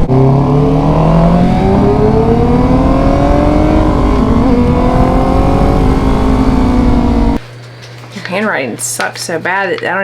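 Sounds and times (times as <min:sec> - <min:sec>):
motorcycle engine accelerating: 0:00.0 - 0:07.4
wind rush: 0:00.0 - 0:07.4.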